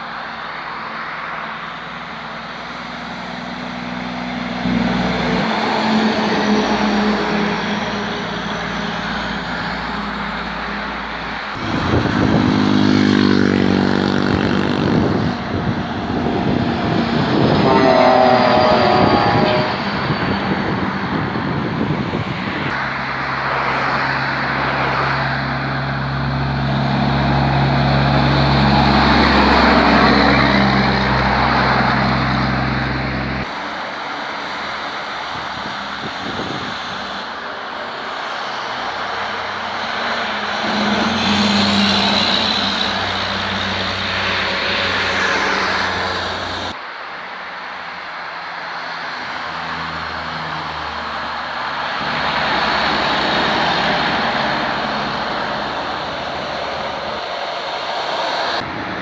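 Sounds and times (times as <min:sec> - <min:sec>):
heavy trucks passing: 0:00.0 - 0:59.0.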